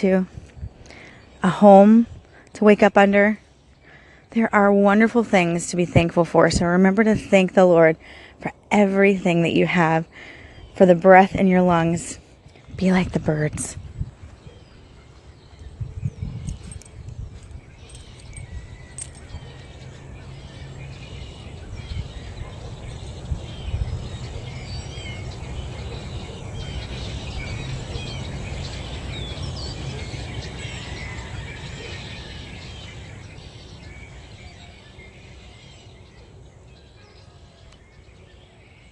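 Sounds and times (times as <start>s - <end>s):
songbirds singing and chirping: 0.0s - 38.9s.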